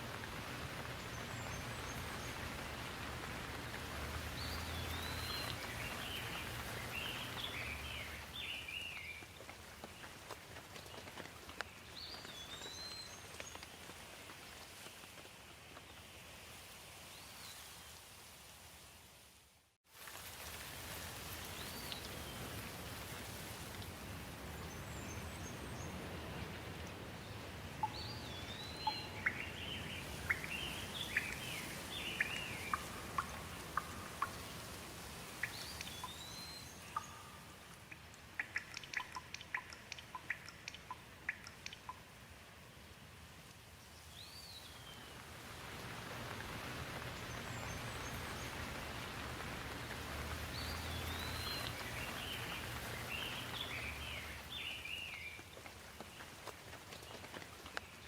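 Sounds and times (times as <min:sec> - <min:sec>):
sharp drips pattering: 0:00.0 - 0:15.4, 0:20.0 - 0:42.5, 0:43.4 - 0:58.0
steady rain falling: 0:00.0 - 0:58.0
birds calling: 0:27.8 - 0:34.5.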